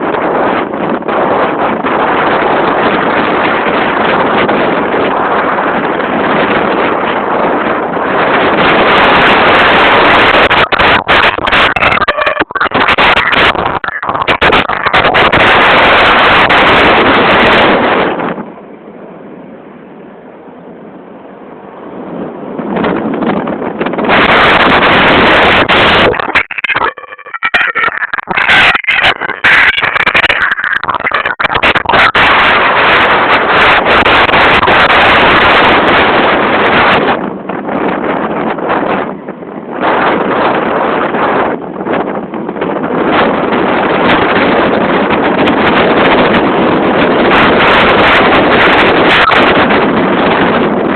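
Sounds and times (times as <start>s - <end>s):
wind buffeting microphone: 0.0s - 50.9s
crackling pops: 10.2s - 16.6s, 24.1s - 34.9s.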